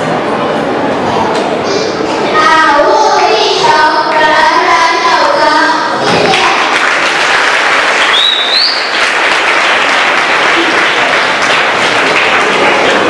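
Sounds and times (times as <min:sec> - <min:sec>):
children singing: 0:01.7 - 0:06.6
audience applause: 0:06.2 - 0:13.0.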